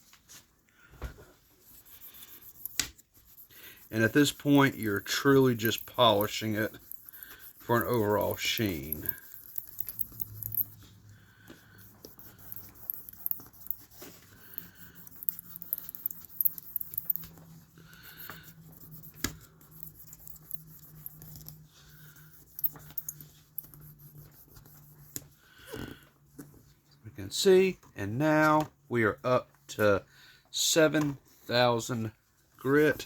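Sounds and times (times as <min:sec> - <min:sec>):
steady low hum: 0:01.6 - 0:25.2
scratchy abrasive rubbing: 0:01.6 - 0:25.3.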